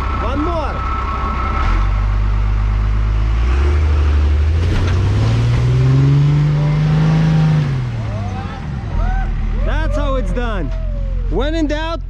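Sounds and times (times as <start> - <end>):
vehicle engine revving hard: 3.2 - 8.8.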